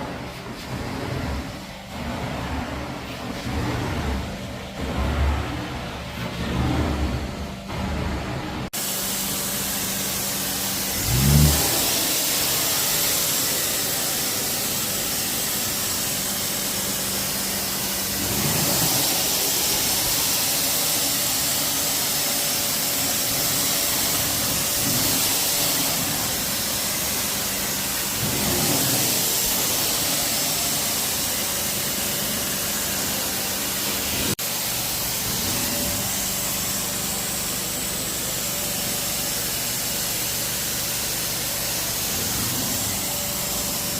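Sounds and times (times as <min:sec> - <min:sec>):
carpet extraction machine humming: 0:00.0 - 0:43.9.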